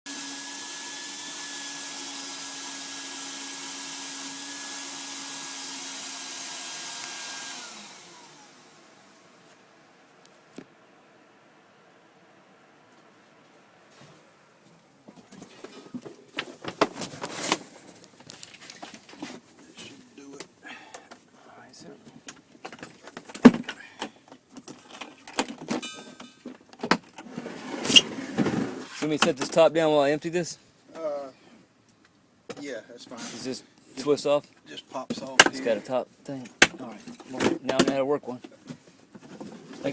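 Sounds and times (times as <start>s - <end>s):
vacuum motor running: 0.1s - 9.2s.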